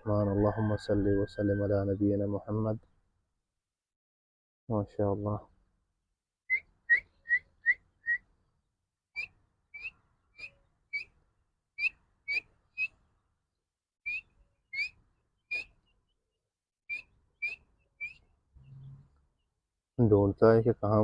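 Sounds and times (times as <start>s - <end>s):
bird chick peeping: 6.5s - 8.2s, 9.2s - 11.2s, 11.8s - 13.0s, 14.0s - 16.2s, 16.9s - 19.5s.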